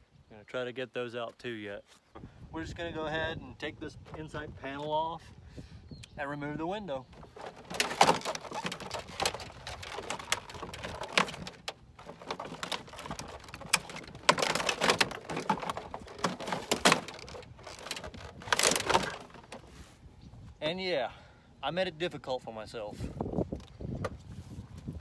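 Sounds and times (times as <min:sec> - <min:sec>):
plastic clips clicking loose: 0:07.2 - 0:19.6.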